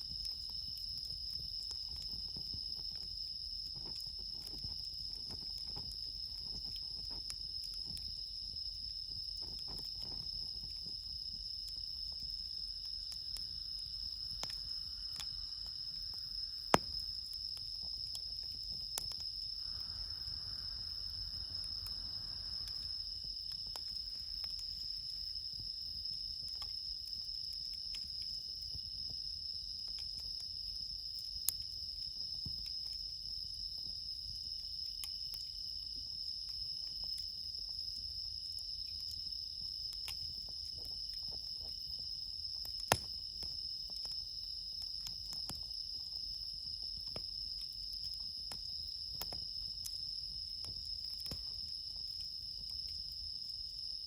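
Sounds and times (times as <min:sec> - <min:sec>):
campfire crackling: 0:00.0 - 0:34.0, 0:34.8 - 0:53.8
crickets chirping: 0:00.0 - 0:54.0
high even insect trill: 0:12.4 - 0:25.5.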